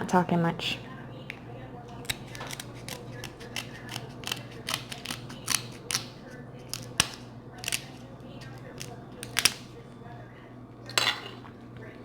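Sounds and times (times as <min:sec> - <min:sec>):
steady low hum: 0:00.0 - 0:12.0
crab shells cracking: 0:02.0 - 0:09.7.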